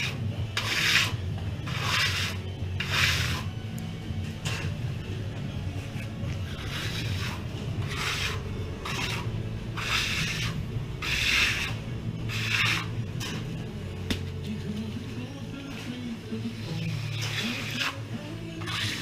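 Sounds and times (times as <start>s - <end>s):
rasping scraping strokes: 0.0s - 3.6s, 4.2s - 5.0s, 5.8s - 13.7s, 15.8s - 19.0s
radio music: 13.4s - 19.0s.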